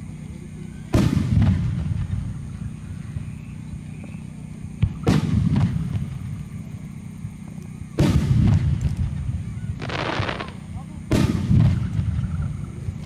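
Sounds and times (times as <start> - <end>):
firework rumble: 0.0 - 13.0
sharp crack and heavy boom: 0.9 - 2.4, 4.8 - 6.4, 8.0 - 12.6
firework shells bursting: 7.4 - 13.0.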